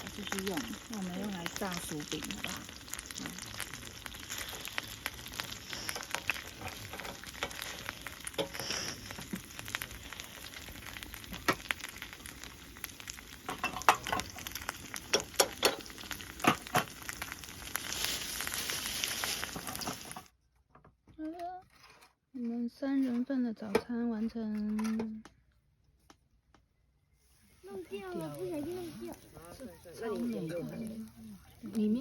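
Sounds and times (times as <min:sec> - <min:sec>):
hash browns sizzling in oil: 0:00.0 - 0:20.3, 0:27.2 - 0:32.0.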